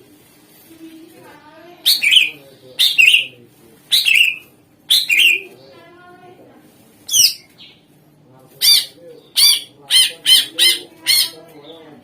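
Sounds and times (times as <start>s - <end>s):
bird calling loudly: 1.8s - 3.3s, 3.9s - 5.5s, 8.6s - 11.4s.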